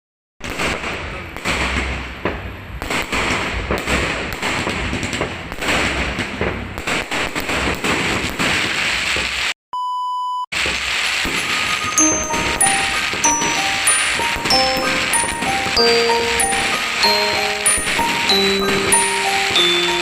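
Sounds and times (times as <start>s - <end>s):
fireworks bangs and crackling: 0.4s - 9.6s, 10.6s - 20.0s
electronic beep tone: 11.6s - 20.0s.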